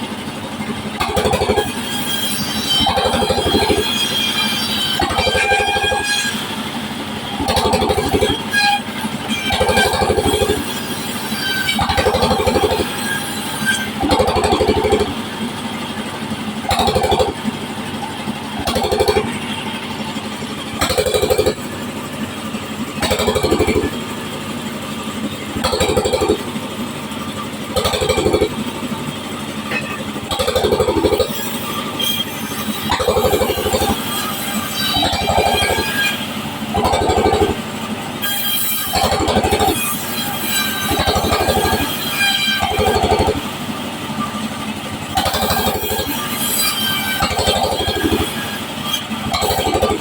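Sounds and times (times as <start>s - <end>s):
sawmill saw cutting wood: 0.0s - 50.0s.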